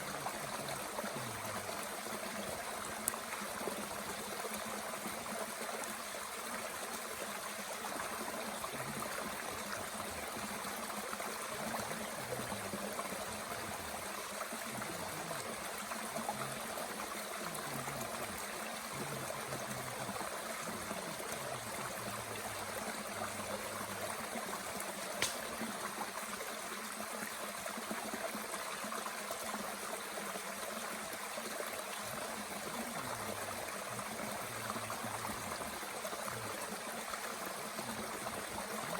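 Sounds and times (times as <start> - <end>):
stream rushing and burbling: 0.0 - 38.9
sharp snap: 25.2 - 25.6.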